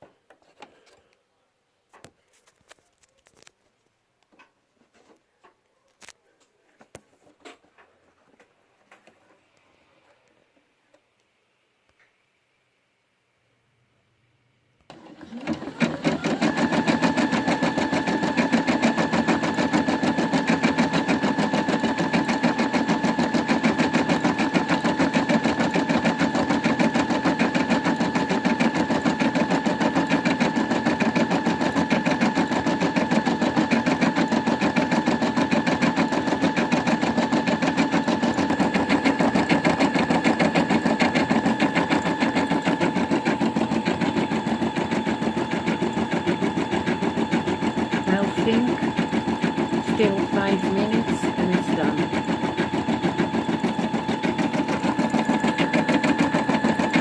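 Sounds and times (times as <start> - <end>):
embroidery machine needle clatter: 15.0 - 57.0
motor whine: 37.6 - 57.0.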